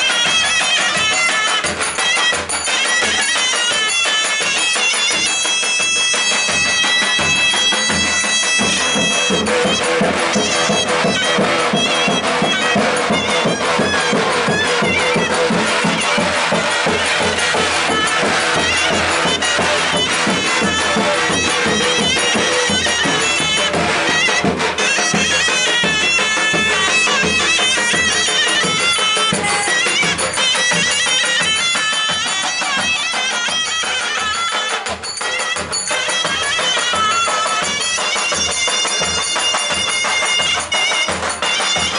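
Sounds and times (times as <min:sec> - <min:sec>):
driving drum beat: 0:00.0 - 0:41.9
shrill wind instrument: 0:00.0 - 0:41.9.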